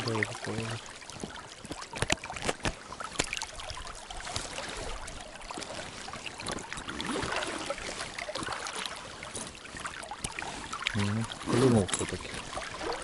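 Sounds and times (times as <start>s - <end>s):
river water running: 0.0s - 13.0s
small clicks and rustles: 1.1s - 7.2s.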